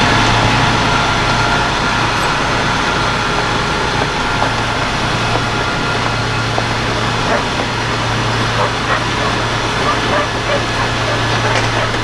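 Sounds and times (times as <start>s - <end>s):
diesel truck engine running: 0.0s - 12.0s
faint clicks: 4.3s - 12.0s.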